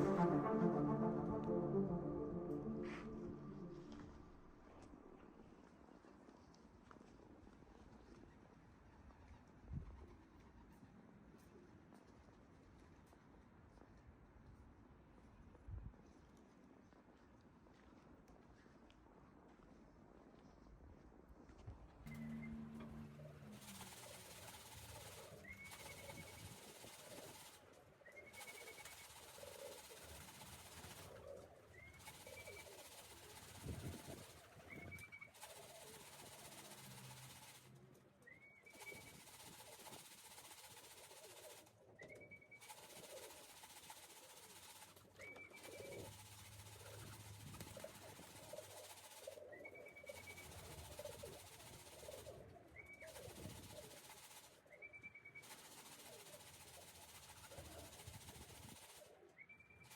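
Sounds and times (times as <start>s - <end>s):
short high rising note: 0.0s - 4.6s.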